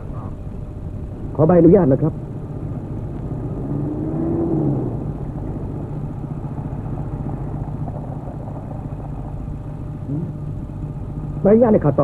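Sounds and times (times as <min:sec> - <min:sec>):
car engine idling: 0:00.0 - 0:12.0
rising and falling tone: 0:03.1 - 0:05.9.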